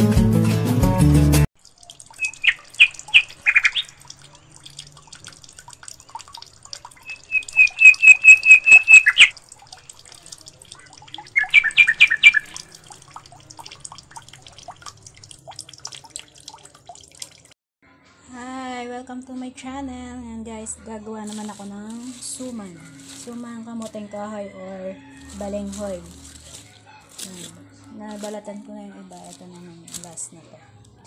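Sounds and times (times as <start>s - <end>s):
birds chirping: 1.8s - 13.2s
faint high twittering: 7.0s - 9.3s.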